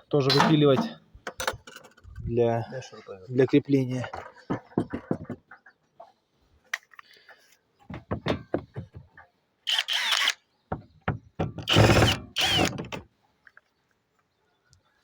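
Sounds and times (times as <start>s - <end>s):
power tool cutting wood: 9.7s - 10.3s, 11.7s - 12.8s.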